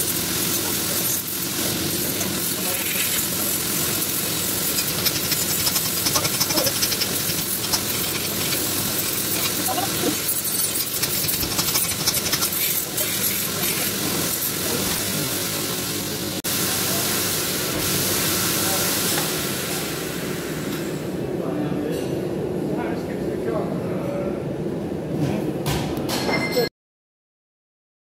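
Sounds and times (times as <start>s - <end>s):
forge hissing and crackling: 0.0s - 21.2s.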